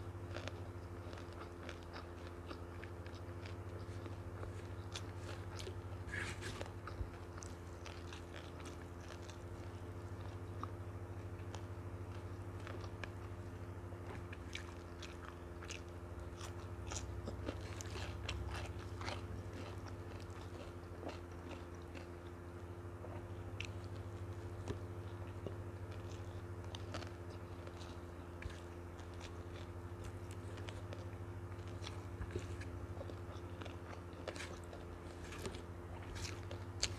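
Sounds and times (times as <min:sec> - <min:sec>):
chewing and crunching food: 0:00.0 - 0:36.9
steady low hum: 0:00.0 - 0:36.9.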